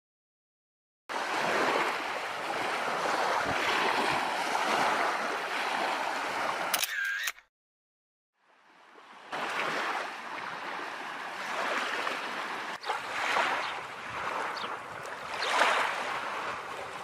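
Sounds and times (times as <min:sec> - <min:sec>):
sea surf washing on shore: 0:01.1 - 0:06.7, 0:09.3 - 0:17.0.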